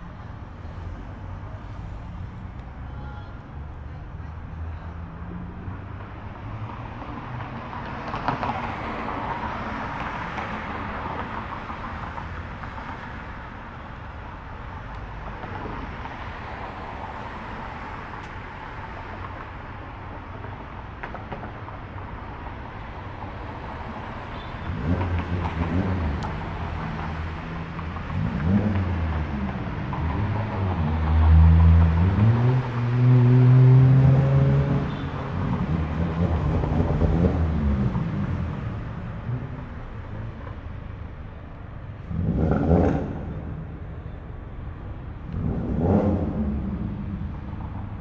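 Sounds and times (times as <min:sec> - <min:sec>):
cars rolling past: 0:15.0 - 0:48.0
car engine revving: 0:42.0 - 0:43.7, 0:45.3 - 0:47.6.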